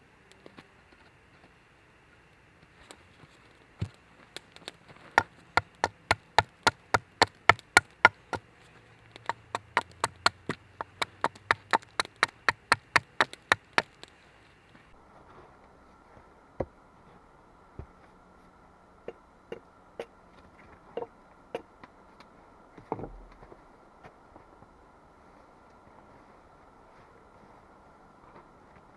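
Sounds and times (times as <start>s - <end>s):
tool knocking on wood: 5.2s - 8.4s.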